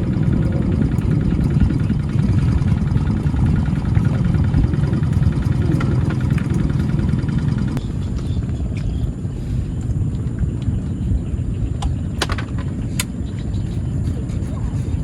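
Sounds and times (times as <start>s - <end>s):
fine even ticking: 0.0s - 7.8s
low motor rumble: 0.0s - 15.0s.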